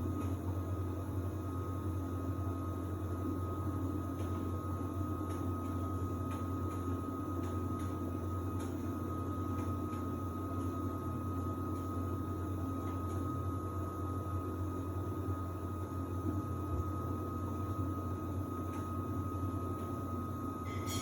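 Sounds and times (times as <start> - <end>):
washer-dryer humming: 0.0 - 21.0
high whine: 20.6 - 21.0.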